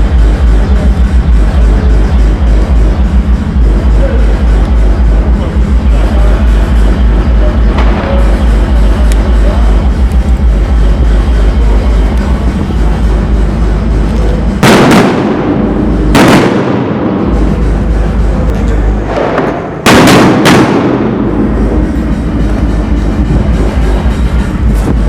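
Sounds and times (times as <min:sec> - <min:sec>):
music with heavy bass: 0:00.0 - 0:25.0
firecracker bangs: 0:06.0 - 0:09.9, 0:14.5 - 0:17.7, 0:19.0 - 0:21.7.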